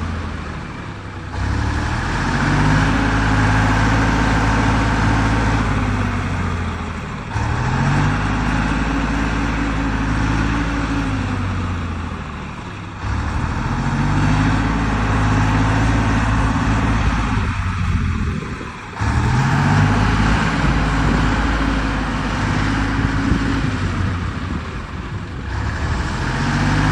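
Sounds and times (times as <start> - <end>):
truck engine driving: 0.0 - 26.9.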